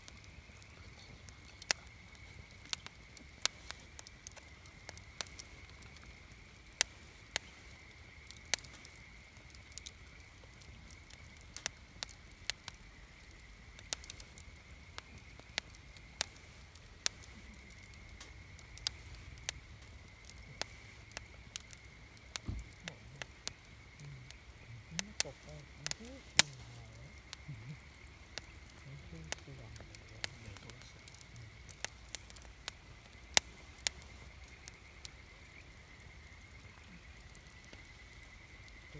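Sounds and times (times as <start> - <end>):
campfire crackling and popping: 0.0 - 38.9.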